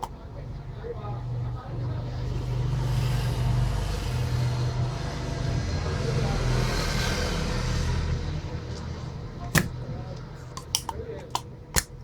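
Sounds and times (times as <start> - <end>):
sharp click: 9.5 - 12.0.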